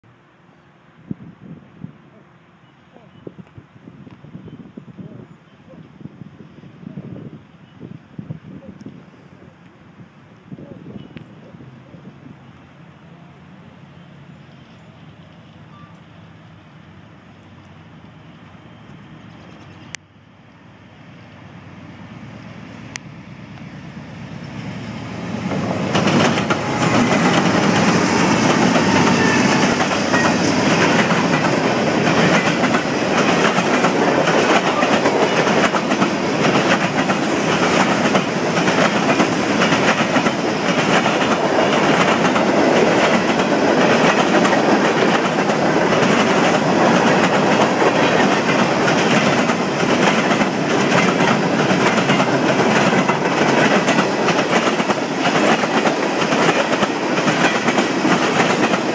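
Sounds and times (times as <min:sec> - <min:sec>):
freight train rumbling past: 0:09.4 - 0:58.9
wheels clacking over rail joints: 0:25.3 - 0:58.9.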